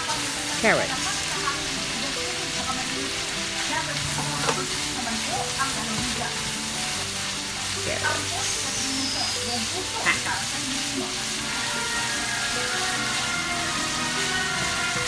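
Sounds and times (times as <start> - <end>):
vegetables sizzling in a pan: 0.0 - 15.0
utensil clinking against pan: 3.6 - 7.2.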